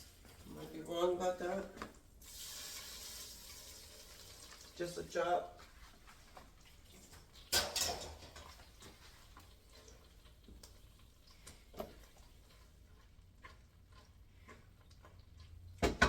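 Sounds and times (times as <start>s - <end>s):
kitchen items clattering: 7.0s - 9.1s.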